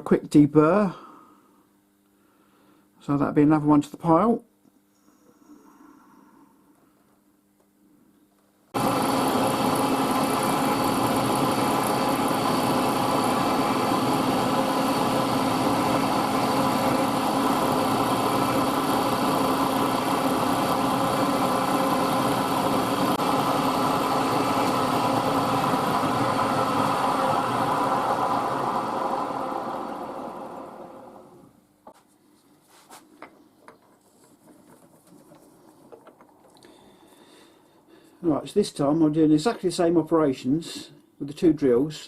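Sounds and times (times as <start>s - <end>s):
milling machine running: 8.8s - 31.5s.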